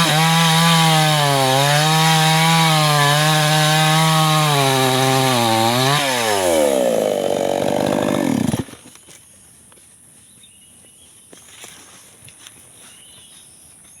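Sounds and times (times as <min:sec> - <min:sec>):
chainsaw engine winding down: 0:00.0 - 0:08.8.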